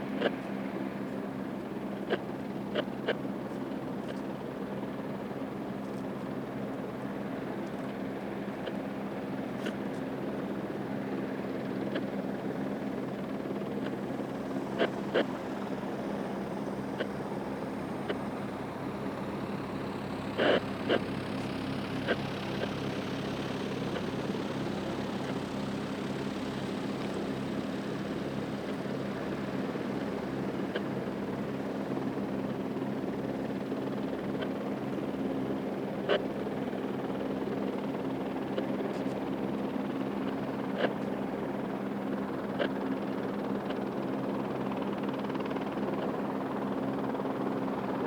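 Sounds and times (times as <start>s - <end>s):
helicopter engine and rotor: 0.0s - 48.0s.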